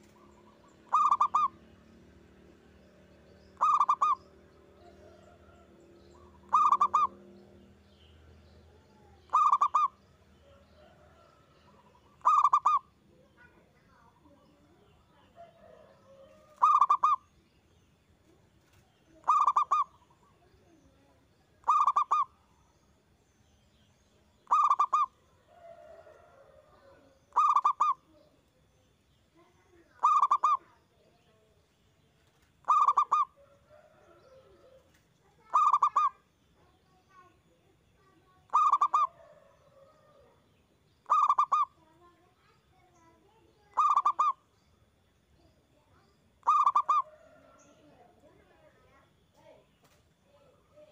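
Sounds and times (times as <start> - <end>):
dove cooing: 0.0 - 1.6, 3.6 - 4.2, 4.9 - 7.3, 9.3 - 12.9, 15.4 - 17.2, 19.1 - 20.4, 21.6 - 22.4, 24.4 - 28.2, 29.9 - 30.7, 32.6 - 36.2, 38.5 - 40.4, 41.0 - 41.8, 43.7 - 44.4, 46.4 - 47.9.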